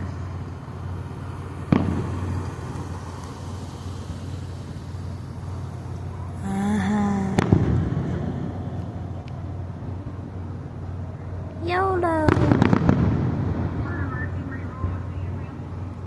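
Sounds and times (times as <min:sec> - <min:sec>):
steady low hum: 0:00.0 - 0:16.0
firework bang: 0:01.7 - 0:02.8, 0:07.3 - 0:08.6, 0:12.2 - 0:13.9.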